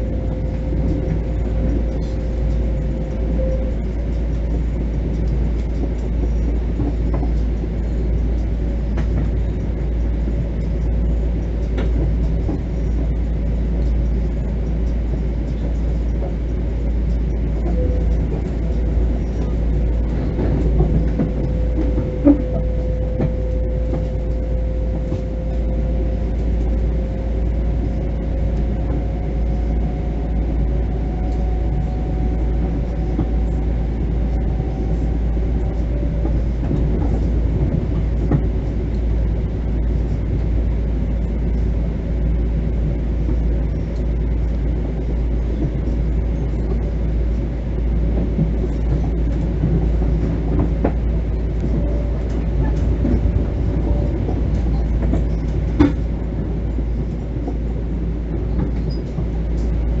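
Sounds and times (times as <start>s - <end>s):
train wheels rumbling on rail: 0.0s - 60.0s.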